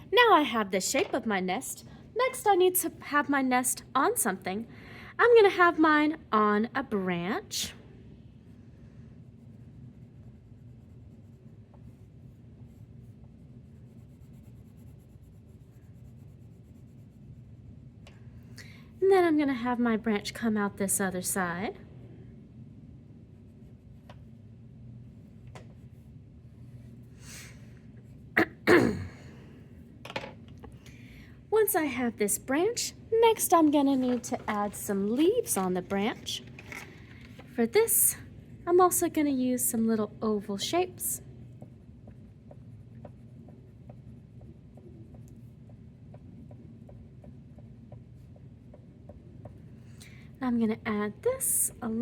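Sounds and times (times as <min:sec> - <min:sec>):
low steady hum: 0:00.0 - 0:52.0
drawing tool strokes on paper: 0:08.8 - 0:17.8
sharp intake of breath: 0:27.2 - 0:27.7
person sneezing: 0:28.4 - 0:29.5.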